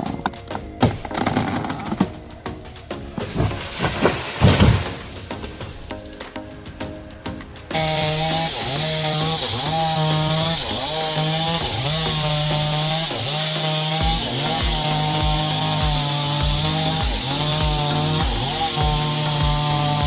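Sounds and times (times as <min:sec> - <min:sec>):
chainsaw cutting wood: 0:07.7 - 0:20.0
low regular thump: 0:14.0 - 0:20.0.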